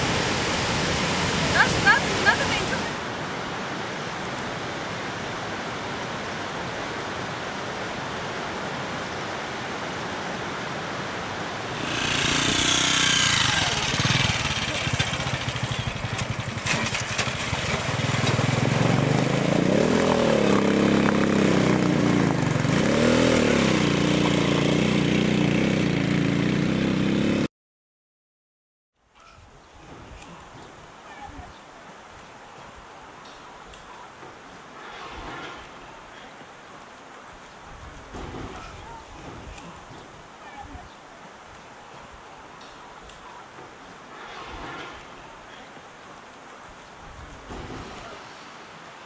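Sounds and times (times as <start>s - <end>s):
waterfall rushing: 0.0s - 16.1s, 45.1s - 49.0s
vehicle engine running: 11.7s - 27.4s.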